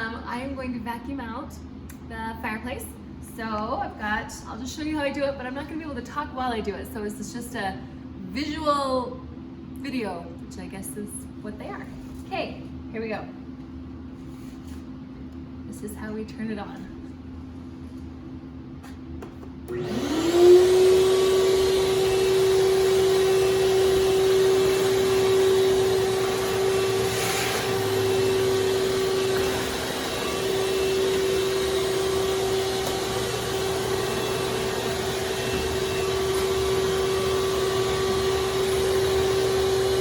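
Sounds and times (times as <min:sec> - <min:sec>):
shop vacuum motor whining: 0:19.6 - 0:40.0.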